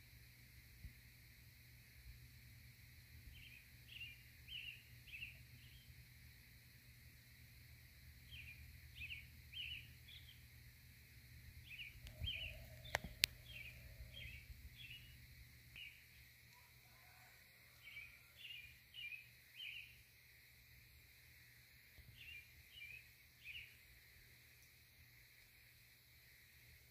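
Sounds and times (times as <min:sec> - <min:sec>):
small bird chirping: 0:03.3 - 0:06.0, 0:08.2 - 0:10.5, 0:11.6 - 0:16.2, 0:17.8 - 0:20.1, 0:22.0 - 0:23.8
sharp clicks: 0:12.8 - 0:13.5.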